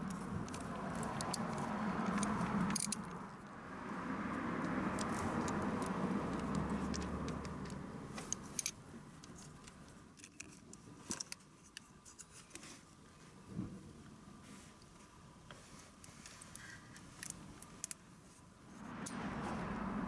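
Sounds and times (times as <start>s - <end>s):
light metallic clicks and clinks: 0.1s - 3.3s.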